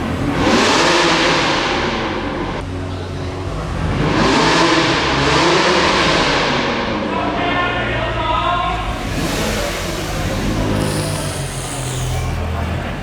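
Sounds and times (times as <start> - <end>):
car engine revving: 0.0 - 13.0
high steady tone: 8.7 - 12.7.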